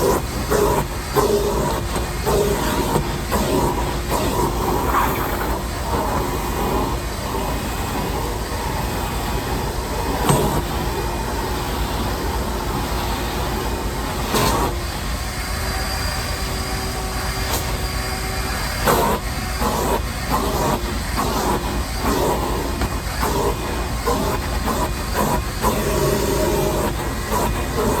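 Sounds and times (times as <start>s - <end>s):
shop vac running: 0.0s - 28.0s.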